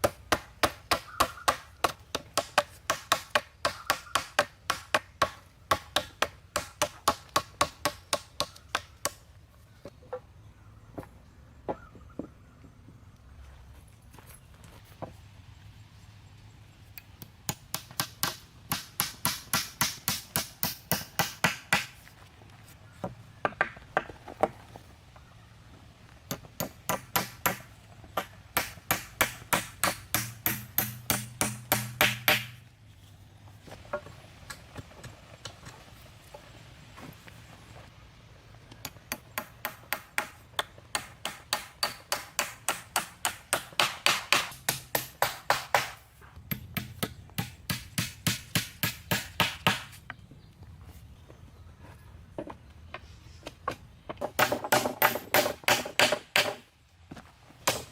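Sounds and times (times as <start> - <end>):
hammer striking nails: 17.5 - 21.9, 26.3 - 32.6, 39.1 - 50.0, 54.2 - 56.6.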